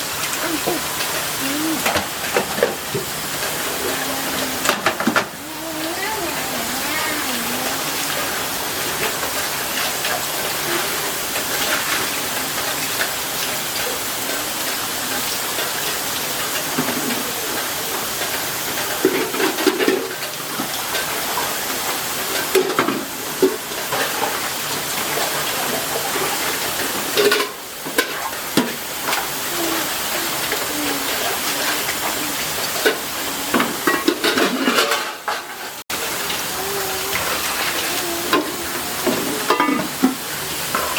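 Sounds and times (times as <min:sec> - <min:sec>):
steady rain hissing: 0:00.0 - 0:40.9
dishes and utensils clattering: 0:16.6 - 0:29.4, 0:30.2 - 0:35.8, 0:38.3 - 0:40.9.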